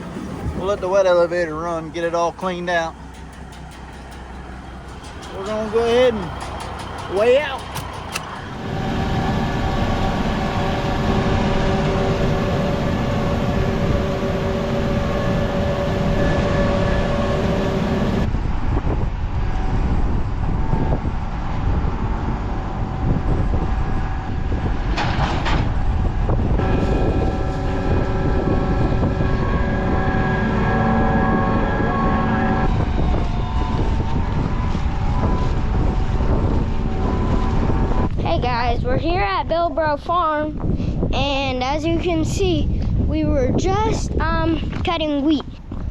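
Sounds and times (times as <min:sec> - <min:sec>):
truck diesel engine driving: 0:00.0 - 0:18.4.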